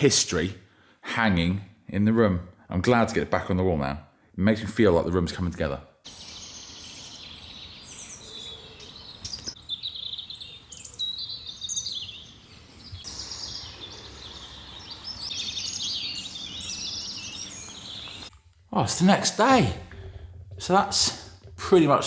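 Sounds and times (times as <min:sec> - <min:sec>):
birds singing and chirping: 0:06.1 - 0:22.0.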